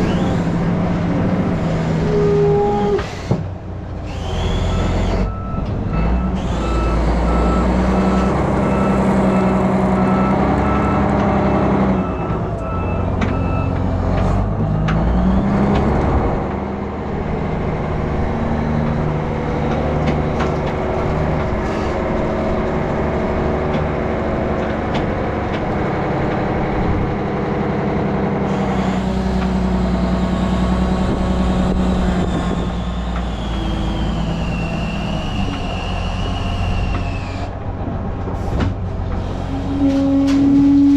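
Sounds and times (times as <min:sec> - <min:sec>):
heavy diesel engine: 0:00.0 - 0:40.9
reversing alarm beeping: 0:04.1 - 0:13.8.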